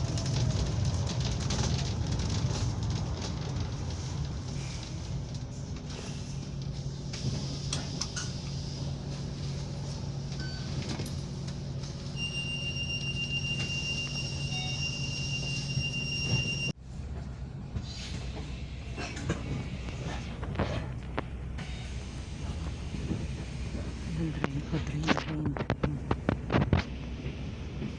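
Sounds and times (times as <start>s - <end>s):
faint clicks and rattles: 0.0s - 6.8s.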